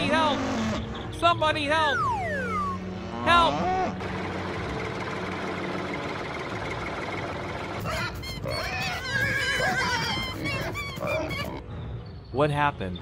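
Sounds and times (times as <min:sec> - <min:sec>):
tractor engine running: 0:04.0 - 0:08.3
horse whinnying: 0:07.8 - 0:11.6.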